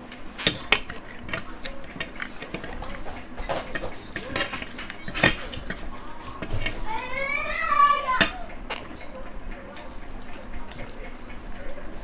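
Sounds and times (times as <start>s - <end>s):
utensils scraping plates: 0.0s - 12.0s.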